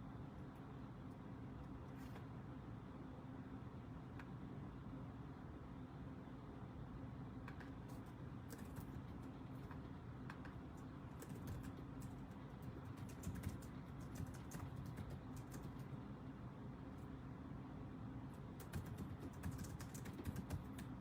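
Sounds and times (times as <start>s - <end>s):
low room hum: 0.0s - 21.0s
computer keyboard typing: 7.5s - 16.0s, 18.6s - 21.0s.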